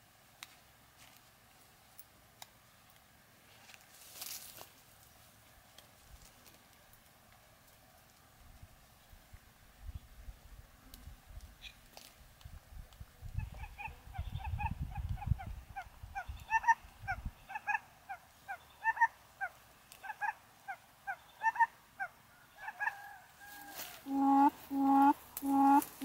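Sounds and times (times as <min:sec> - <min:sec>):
low rumble of wind: 0:08.2 - 0:18.7
bird calling: 0:13.5 - 0:26.0.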